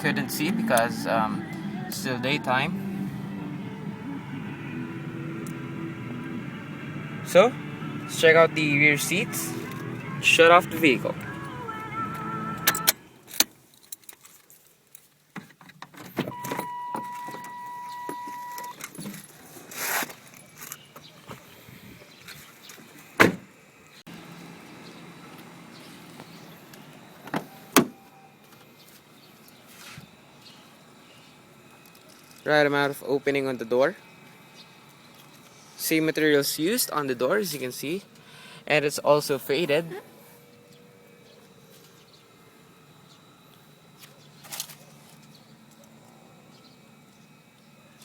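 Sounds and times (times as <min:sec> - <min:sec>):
faint background hum: 0:15.9 - 0:48.0.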